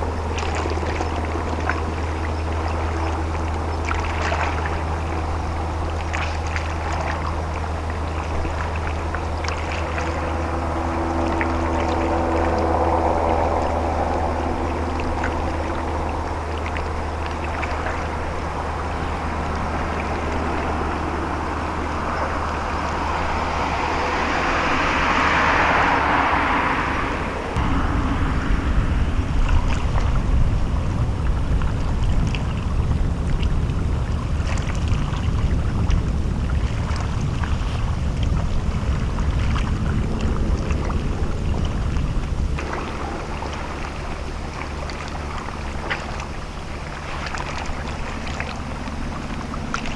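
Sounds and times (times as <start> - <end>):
boat engine hum: 0.0 - 49.9
water wash: 0.0 - 49.9
wind buffeting microphone: 0.0 - 49.9.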